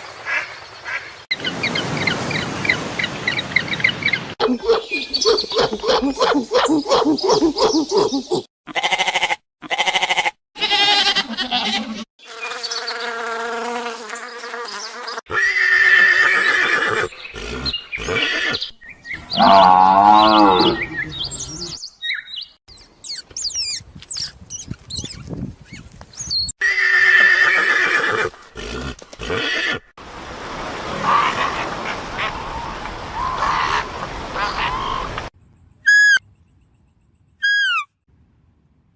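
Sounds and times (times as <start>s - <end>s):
high quick sliding chirps: 35.9s - 36.2s, 37.4s - 37.9s.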